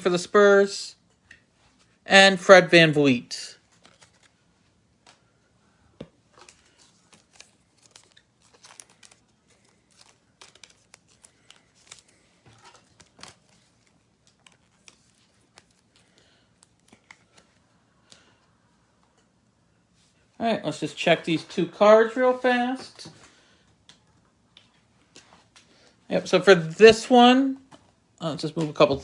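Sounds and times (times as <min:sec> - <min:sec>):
trading cards tapping and rustling: 0:06.0 - 0:18.3.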